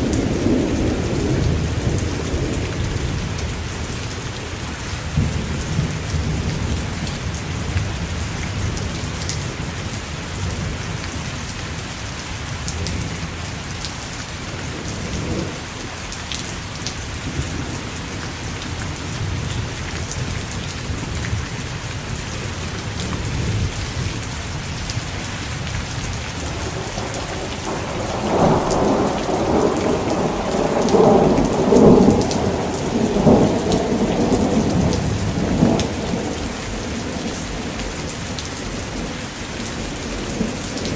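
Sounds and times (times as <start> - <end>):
steady rain falling: 0.0 - 40.9
thunder rumble: 19.1 - 40.9.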